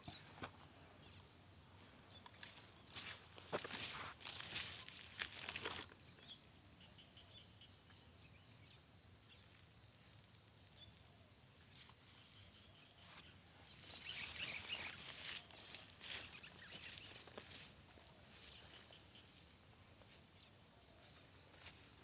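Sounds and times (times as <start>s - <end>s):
rustling in vegetation: 1.8s - 6.0s, 13.0s - 22.0s
high-pitched insect drone: 13.6s - 20.2s.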